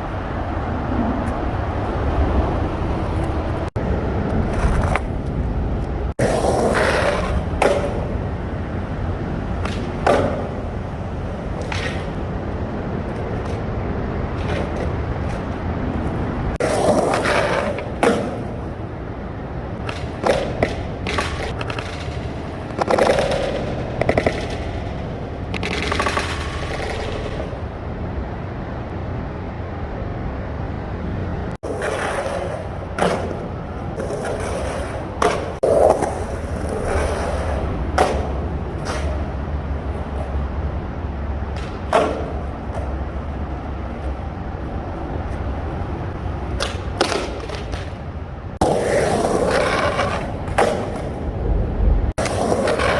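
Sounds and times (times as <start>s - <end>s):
skateboard wheels rolling on concrete: 0.0s - 52.9s
skateboard clacking: 2.6s - 16.0s, 16.6s - 27.7s, 31.6s - 51.6s, 52.2s - 52.9s
skateboard trucks grinding a ledge: 6.2s - 8.8s, 16.6s - 18.8s, 19.8s - 27.6s, 31.6s - 40.4s, 48.6s - 51.4s, 52.2s - 52.9s.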